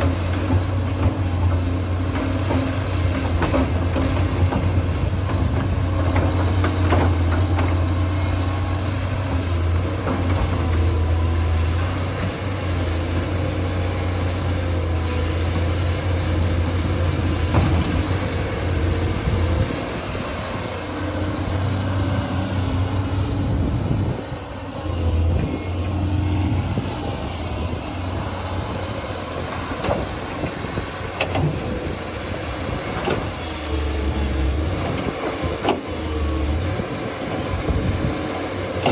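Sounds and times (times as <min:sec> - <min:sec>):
tractor engine droning: 0:09.6 - 0:38.9.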